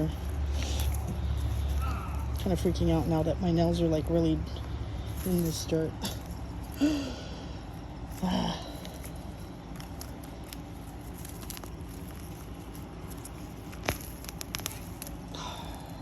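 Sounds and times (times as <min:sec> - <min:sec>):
hands scratching in soil: 0:00.0 - 0:16.0
breathy vocal sound: 0:06.8 - 0:09.1, 0:15.3 - 0:16.0.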